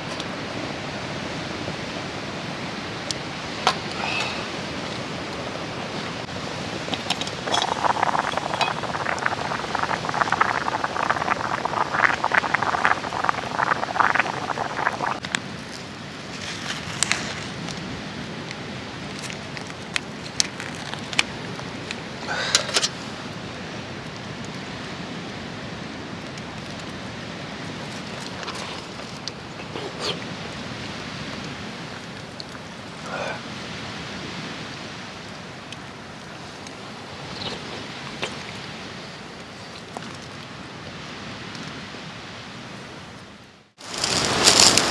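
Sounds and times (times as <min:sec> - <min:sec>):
rushing outdoor noise: 0:00.0 - 0:23.9, 0:43.8 - 0:44.9
dense rustling: 0:43.8 - 0:44.9.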